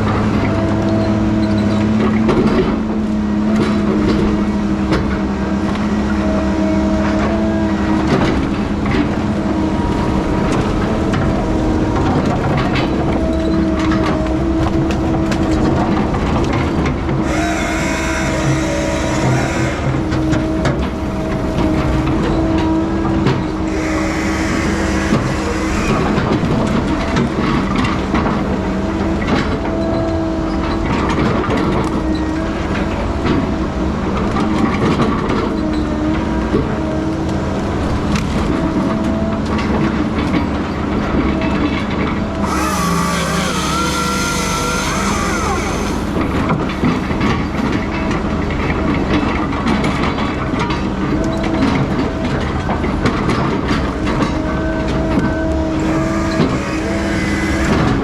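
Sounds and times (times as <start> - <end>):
heavy machinery running: 0.0 - 58.0
high whine: 23.6 - 28.2, 42.4 - 46.6, 55.6 - 58.0
hiss: 23.7 - 26.2, 42.5 - 46.2.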